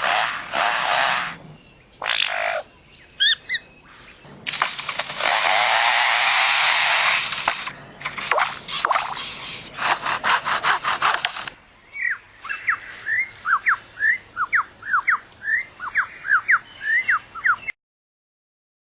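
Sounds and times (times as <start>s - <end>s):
bird mimicking a chainsaw: 0.0s - 1.4s, 2.0s - 3.6s, 4.5s - 11.6s
whistled bird notes: 11.9s - 17.8s.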